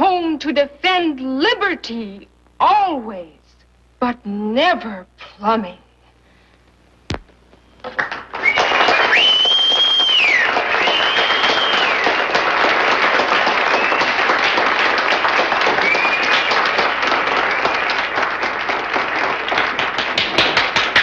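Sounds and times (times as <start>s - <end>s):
audience applauding: 7.8s - 21.0s
high sliding whistles: 8.4s - 12.2s.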